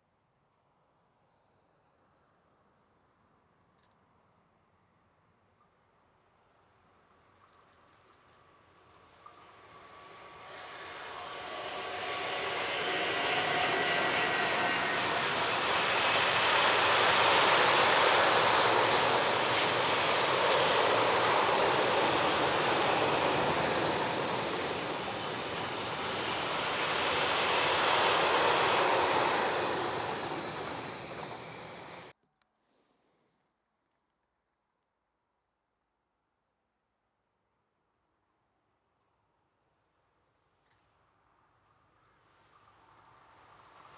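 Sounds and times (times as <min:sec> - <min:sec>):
train wheels rushing on rails: 0:09.2 - 0:32.1.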